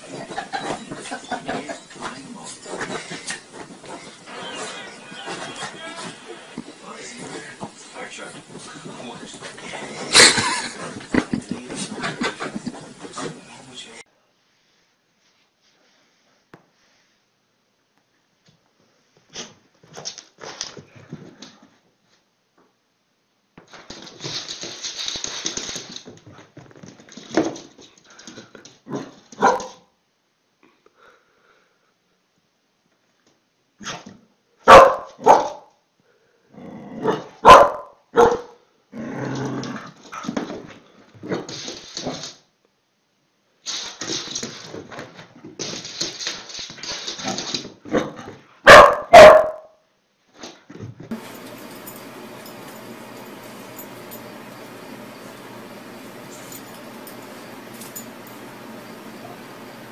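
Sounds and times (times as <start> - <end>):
dog barking: 29.4 - 29.8, 34.6 - 35.7, 37.0 - 38.6, 48.6 - 49.7
hissing rustling noise: 43.6 - 44.8.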